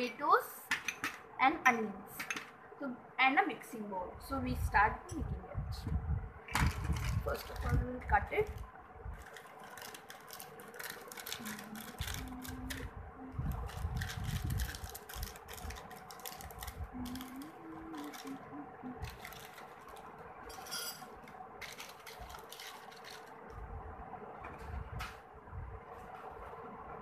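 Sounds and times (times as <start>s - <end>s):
faint steady hum: 0.0s - 27.0s
plastic snack packet crinkling: 6.6s - 7.8s, 9.2s - 12.8s, 13.5s - 18.4s, 19.0s - 20.2s, 21.6s - 23.4s
crunchy snack pieces rattling: 9.2s - 12.8s, 13.5s - 18.4s, 19.0s - 20.1s, 21.6s - 23.4s.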